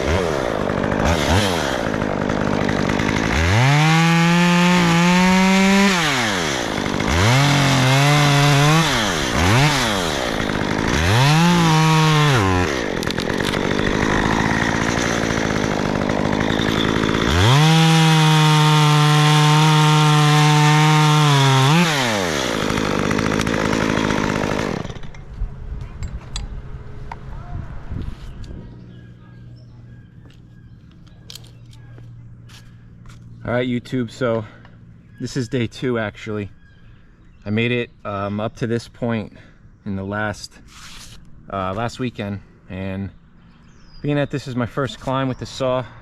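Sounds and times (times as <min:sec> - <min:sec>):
chainsaw engine revving: 0:00.0 - 0:25.2.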